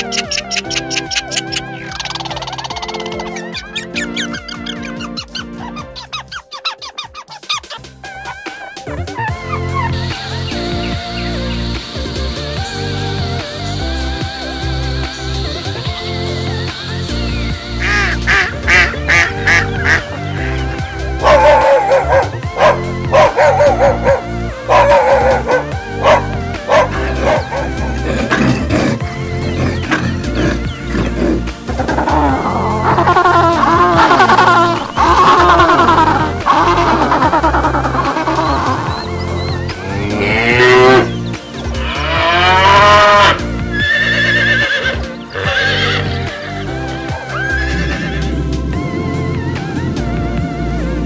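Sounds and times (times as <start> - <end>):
background music: 0.0 - 51.0
dog making wavering high calls: 21.2 - 28.0
dog barking: 21.2 - 29.0
cow mooing: 39.7 - 46.6.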